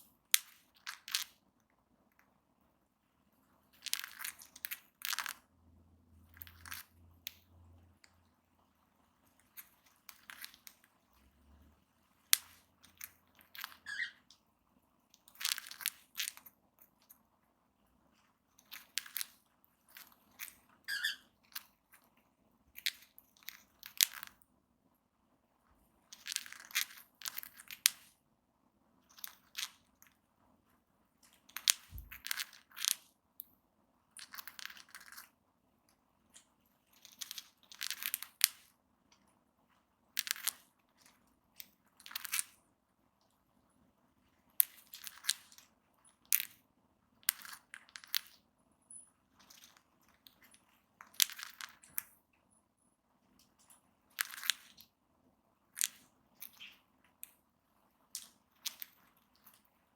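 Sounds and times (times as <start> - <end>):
cockatiels grinding beaks: 13.6 - 14.2, 20.9 - 21.3.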